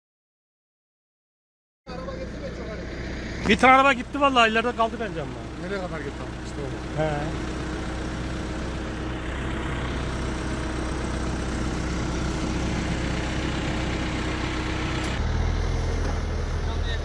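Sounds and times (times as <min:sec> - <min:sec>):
vehicle engine running: 0:01.9 - 0:17.0.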